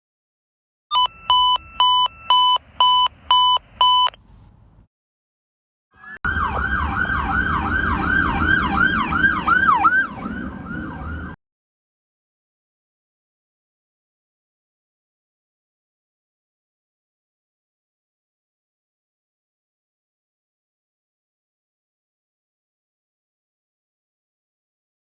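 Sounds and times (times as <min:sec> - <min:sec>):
fire engine siren: 0:06.0 - 0:11.4
truck engine rumble: 0:06.3 - 0:11.4.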